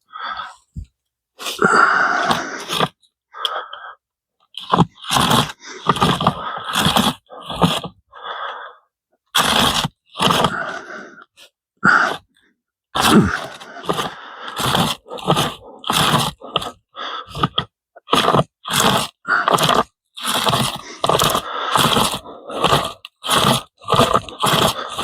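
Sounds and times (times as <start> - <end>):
hand saw chain rasping through wood: 4.6 - 8.0, 9.4 - 10.6, 13.0 - 25.0.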